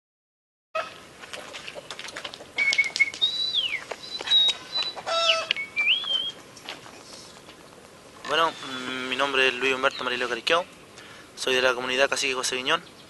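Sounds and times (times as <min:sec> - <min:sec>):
birds whistling: 0:02.6 - 0:11.3.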